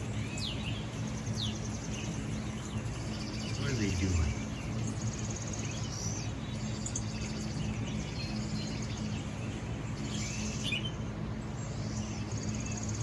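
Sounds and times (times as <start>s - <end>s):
steady low hum: 0.0s - 6.6s
small birds chirping and trilling: 0.0s - 13.0s.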